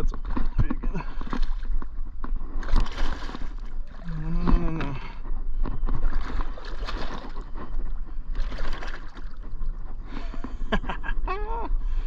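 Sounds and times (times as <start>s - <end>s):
water splashing: 0.0s - 5.2s, 6.0s - 9.9s
wind rumble on microphone: 0.0s - 12.0s.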